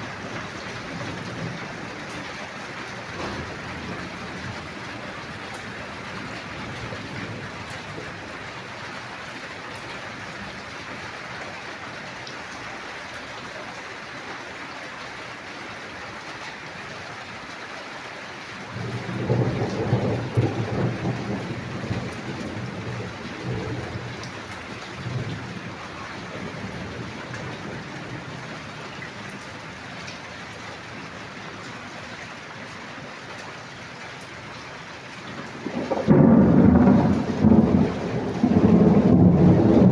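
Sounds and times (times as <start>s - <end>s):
rain hiss: 0.0s - 39.9s
thunder rolling: 3.0s - 8.2s, 18.7s - 28.4s, 35.5s - 39.9s.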